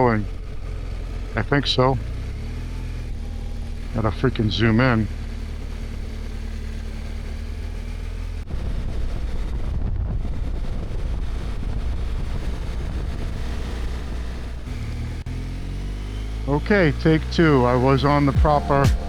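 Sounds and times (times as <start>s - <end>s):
motorcycle engine: 0.0s - 19.0s
wind noise: 8.4s - 15.2s.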